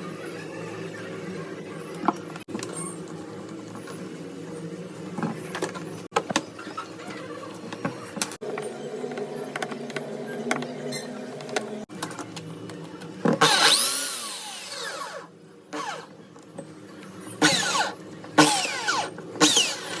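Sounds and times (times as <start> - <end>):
electric drill bursts: 13.4 - 16.1, 17.4 - 20.0.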